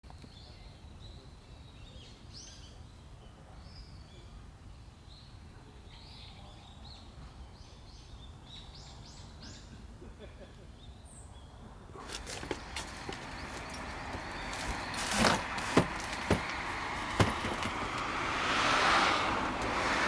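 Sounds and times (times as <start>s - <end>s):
low outdoor rumble: 12.0s - 20.0s.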